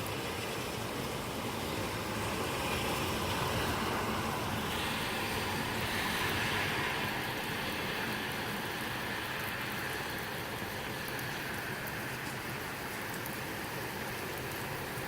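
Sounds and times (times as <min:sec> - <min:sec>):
heavy rain: 0:00.0 - 0:15.0
gusty wind: 0:01.0 - 0:08.4.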